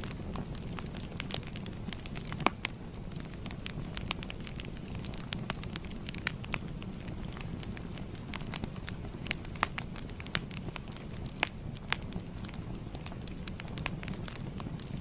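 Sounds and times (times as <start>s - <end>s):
fire crackling: 0.0s - 15.0s
low rumble of flame: 0.0s - 15.0s.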